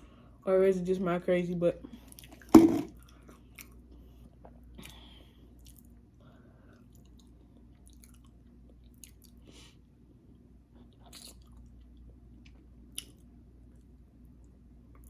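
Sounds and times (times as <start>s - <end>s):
faint low hum: 0.0s - 15.0s
person chewing food: 2.0s - 9.8s, 10.7s - 14.0s.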